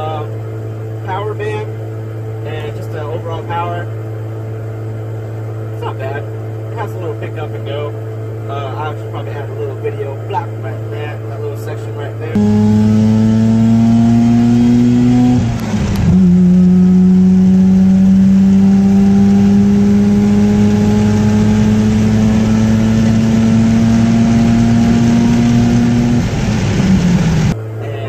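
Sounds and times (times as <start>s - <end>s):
rotary engine accelerating: 12.3s - 27.6s.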